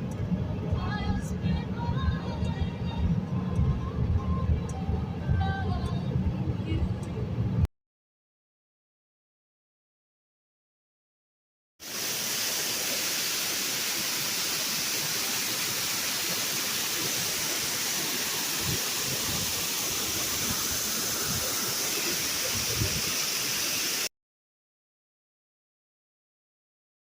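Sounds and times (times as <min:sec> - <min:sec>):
waterfall rushing: 0:11.8 - 0:24.1.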